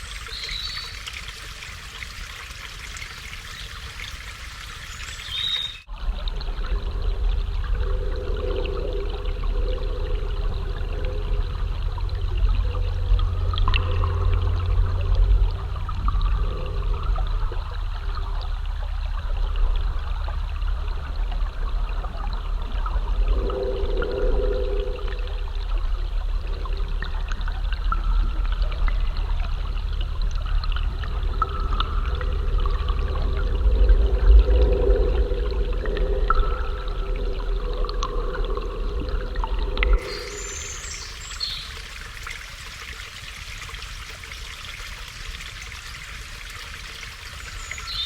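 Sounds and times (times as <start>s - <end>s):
small bubbling ticks: 0.0s - 48.0s
water trickling underwater: 0.0s - 48.0s
low rumble: 5.8s - 41.4s
faint humming tones: 5.9s - 41.8s.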